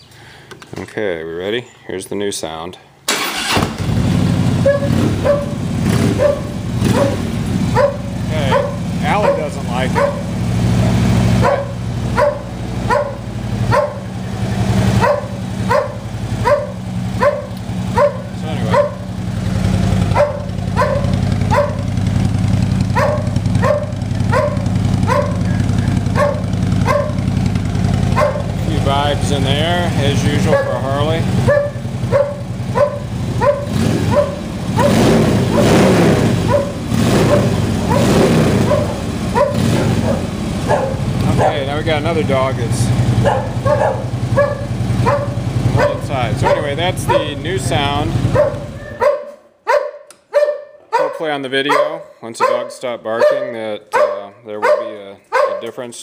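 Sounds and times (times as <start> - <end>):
motorcycle engine idling: 3.2 - 49.8
dog barking: 4.6 - 10.3, 11.4 - 14.1, 15.0 - 19.1, 20.1 - 21.9, 22.9 - 27.3, 28.1 - 28.6, 30.4 - 41.6, 43.2 - 47.4, 48.3 - 55.8.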